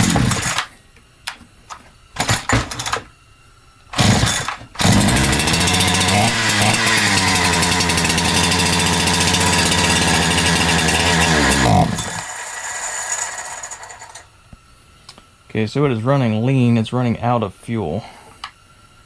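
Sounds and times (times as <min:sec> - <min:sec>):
chainsaw running at high speed: 0:00.0 - 0:00.6, 0:04.0 - 0:14.2
starter cord yanks: 0:00.0 - 0:00.7, 0:01.3 - 0:03.1, 0:03.9 - 0:12.3.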